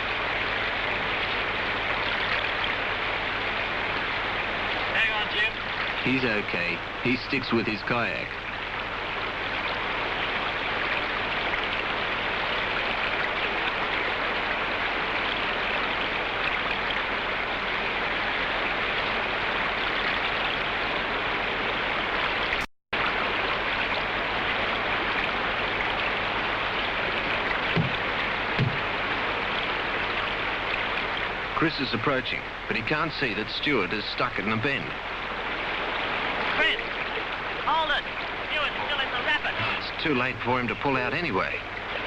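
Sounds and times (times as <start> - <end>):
white water rushing: 0.0 - 42.0
faint short knocks: 27.7 - 28.0, 28.6 - 28.9.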